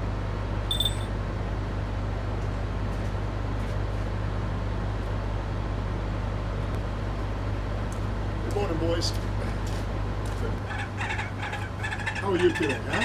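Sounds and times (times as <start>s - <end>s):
constant hum: 0.0s - 13.0s
short high beep: 0.7s - 1.1s
low mechanical rumble: 4.0s - 13.0s.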